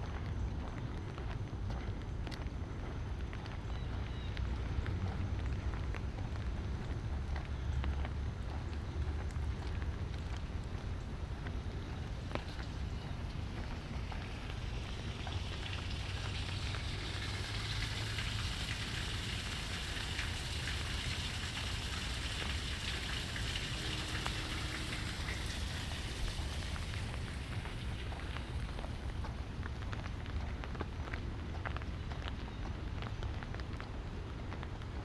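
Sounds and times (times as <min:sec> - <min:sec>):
raindrops ticking close by: 0:00.0 - 0:35.0
light rain hissing: 0:08.6 - 0:30.4.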